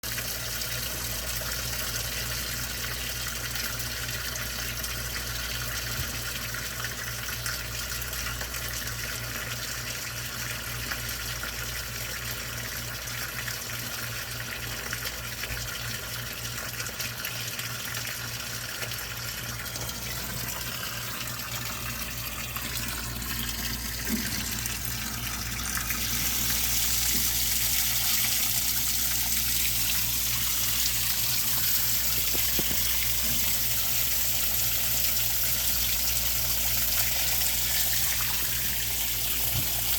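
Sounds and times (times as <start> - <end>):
water running: 16.6 - 39.9.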